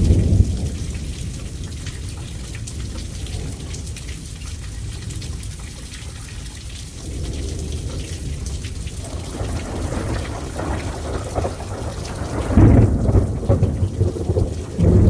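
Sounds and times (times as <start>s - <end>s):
thunder rumbling: 0.0s - 3.8s, 7.0s - 15.0s
steady rain: 0.0s - 15.0s.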